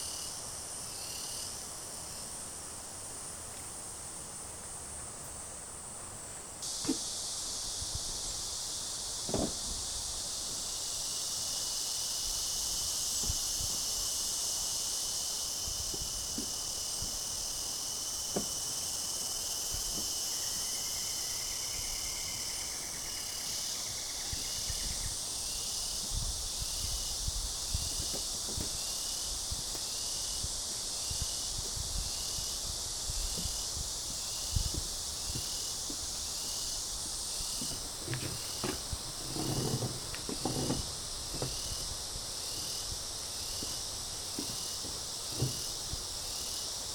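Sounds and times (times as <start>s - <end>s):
insects buzzing: 0.0s - 46.9s
short insect chirp: 0.0s - 46.9s
faint knocks: 9.3s - 9.8s.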